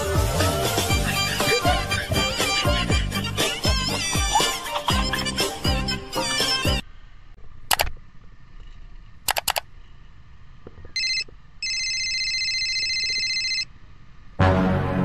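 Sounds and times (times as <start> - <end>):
music: 0.0 - 6.8, 14.4 - 15.0
mouse clicks: 7.7 - 8.0, 9.3 - 9.7
electronic ringing tone: 11.0 - 13.7.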